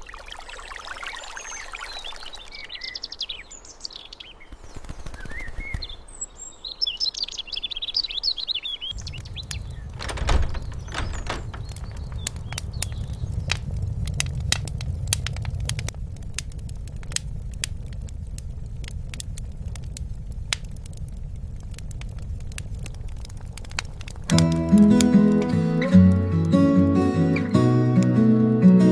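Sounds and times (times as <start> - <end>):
songbirds chirping: 0.0 - 14.5
wood fire crackling: 7.5 - 28.9.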